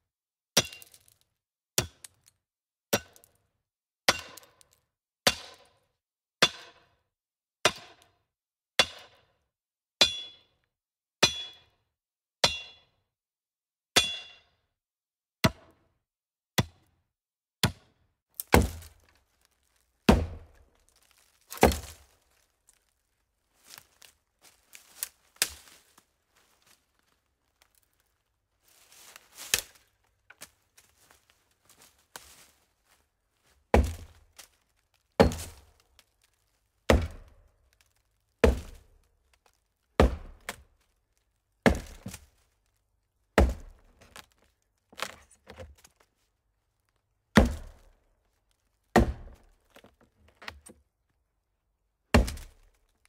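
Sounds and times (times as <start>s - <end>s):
rustle or crackle: 18.9s - 33.6s, 34.2s - 39.8s, 42.2s - 43.2s.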